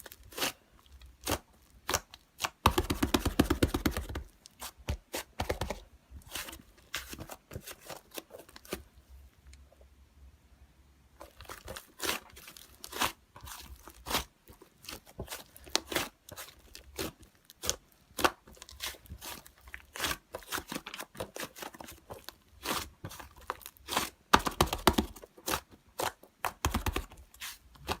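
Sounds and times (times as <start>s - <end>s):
hands kneading slime: 0.0s - 9.0s, 11.2s - 28.0s.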